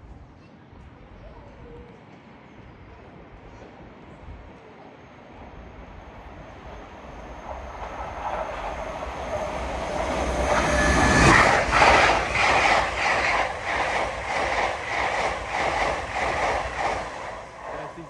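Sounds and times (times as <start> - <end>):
electric train passing at speed: 1.6 - 18.0.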